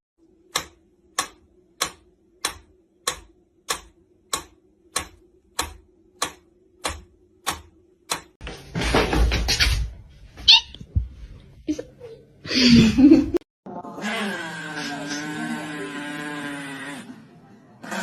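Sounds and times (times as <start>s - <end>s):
regular ticking clicks: 0.4s - 8.4s.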